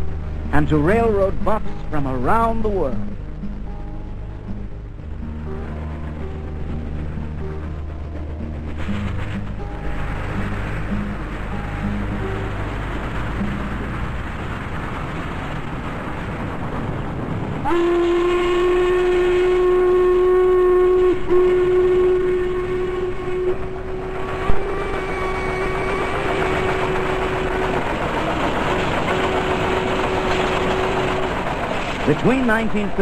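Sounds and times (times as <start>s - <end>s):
train rushing noise: 0.0s - 33.0s
steam locomotive whistle: 17.6s - 33.0s.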